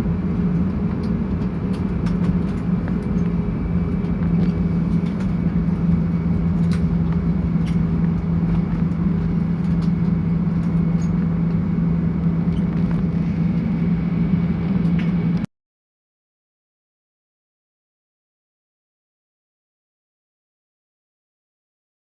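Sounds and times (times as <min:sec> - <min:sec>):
airliner cabin engine hum: 0:00.0 - 0:15.5.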